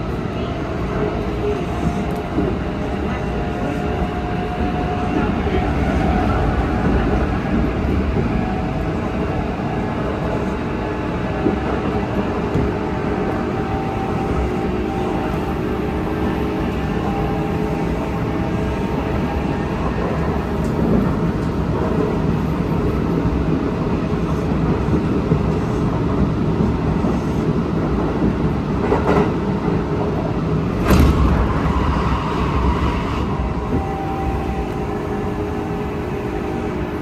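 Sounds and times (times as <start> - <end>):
train wheels rumbling on track: 0.0 - 37.0
loud knock: 30.8 - 34.0.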